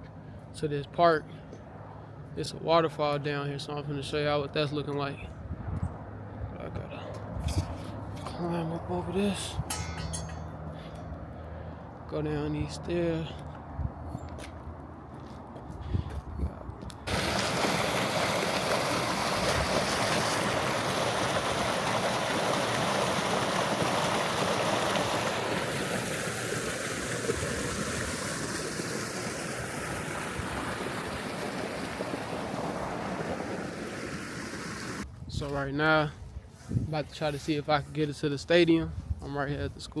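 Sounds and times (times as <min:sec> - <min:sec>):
waterfall rushing: 0:17.1 - 0:35.0.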